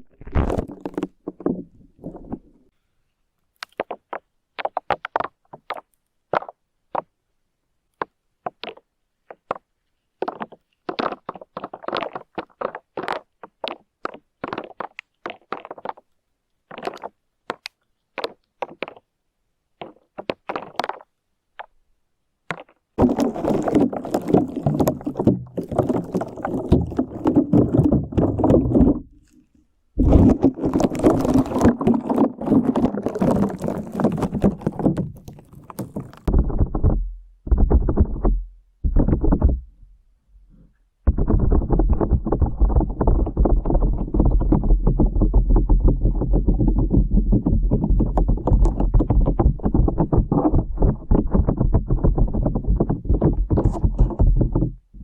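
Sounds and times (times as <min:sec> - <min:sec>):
slime squishing with sticky pops: 0:10.2 - 0:16.1.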